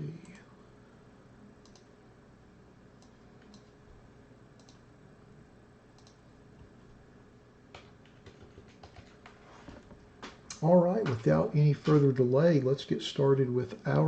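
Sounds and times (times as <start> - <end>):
faint clicks: 1.6 - 1.9, 4.6 - 4.8, 6.0 - 6.7.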